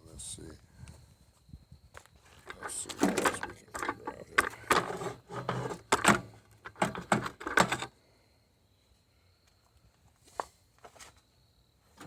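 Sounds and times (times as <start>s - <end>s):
metal tools clinking and knocking: 2.4s - 7.9s.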